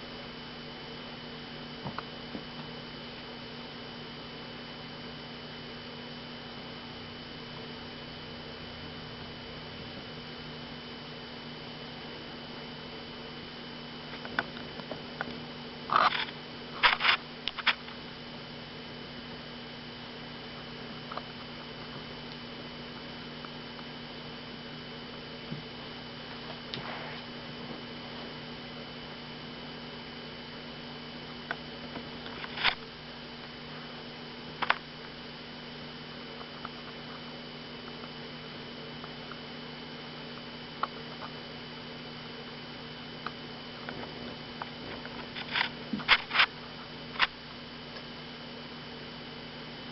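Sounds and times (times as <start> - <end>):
steady electrical hum: 0.0 - 49.9.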